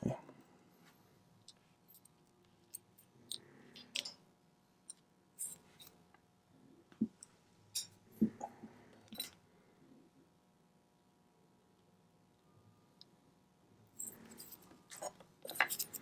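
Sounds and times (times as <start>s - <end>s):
small tools clicking and tapping: 1.4s - 4.2s, 13.9s - 16.0s.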